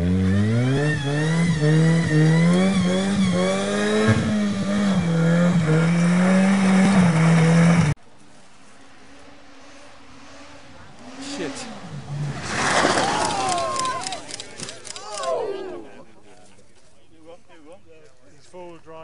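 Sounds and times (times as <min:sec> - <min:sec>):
vehicle engine revving: 0:00.0 - 0:14.0.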